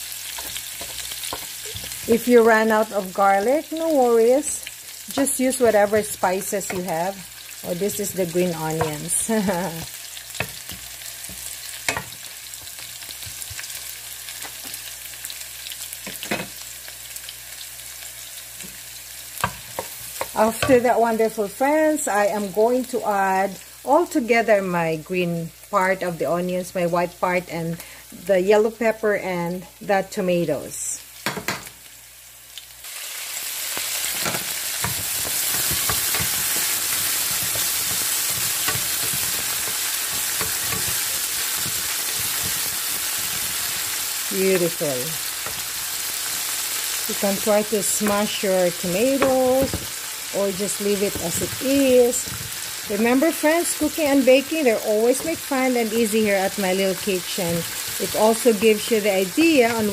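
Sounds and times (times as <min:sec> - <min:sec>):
ginger and garlic sizzling in oil: 0:00.0 - 0:59.9
wooden spatula scraping a pan: 0:34.0 - 0:44.2, 0:50.6 - 0:53.8, 0:56.9 - 0:59.9.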